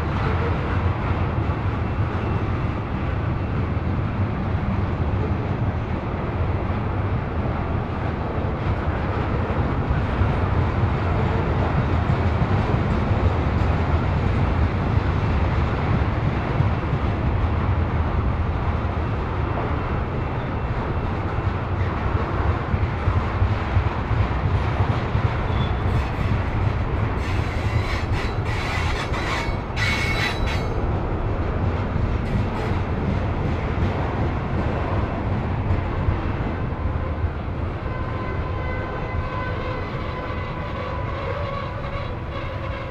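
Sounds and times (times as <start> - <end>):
freight train wheels rumbling: 0.0 - 42.9
wheel squeal: 27.2 - 30.8.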